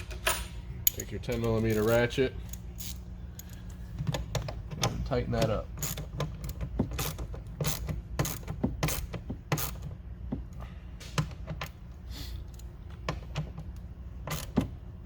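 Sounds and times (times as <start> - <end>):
socket ratchet clicking: 0.2 - 9.9, 12.4 - 14.8.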